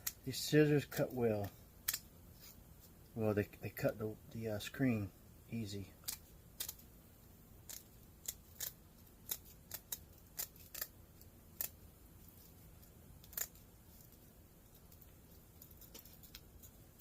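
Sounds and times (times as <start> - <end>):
scissors snipping screen: 7.7 - 10.9, 13.2 - 13.6.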